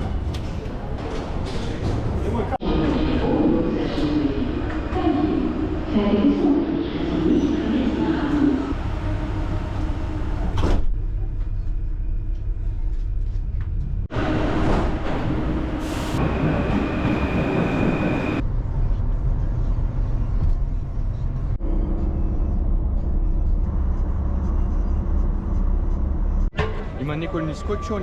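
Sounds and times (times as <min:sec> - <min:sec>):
vehicle low rumble: 0:07.7 - 0:16.8, 0:18.0 - 0:26.5.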